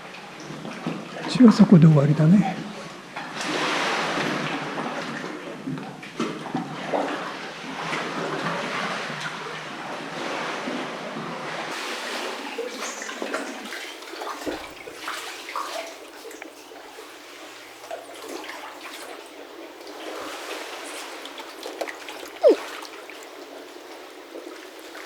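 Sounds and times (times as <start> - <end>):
seawater sloshing and splashing: 11.7 - 25.0.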